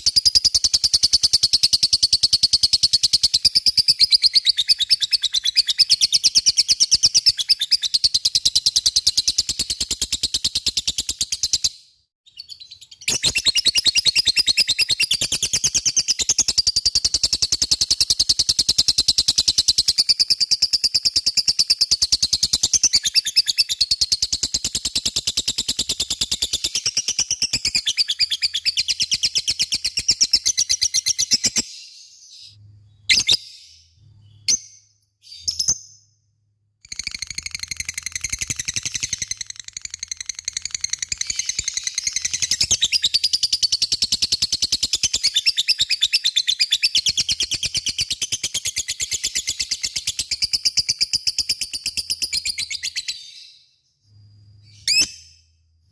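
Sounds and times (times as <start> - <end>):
short bird chirps: 0.0 - 36.3, 36.9 - 51.1, 51.9 - 55.9
lovebird high-pitched trill: 36.9 - 43.7, 54.6 - 55.4.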